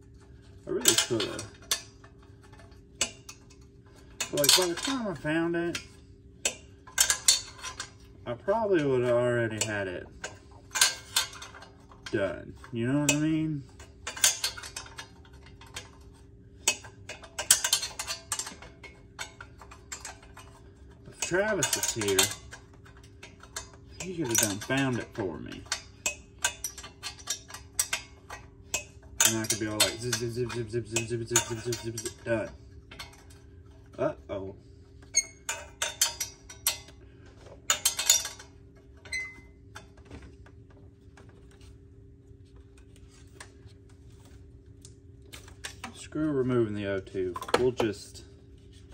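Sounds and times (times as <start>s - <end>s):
faint steady hum: 0.0s - 48.9s
wrench clicking on metal bolts: 4.2s - 5.1s, 16.7s - 32.2s.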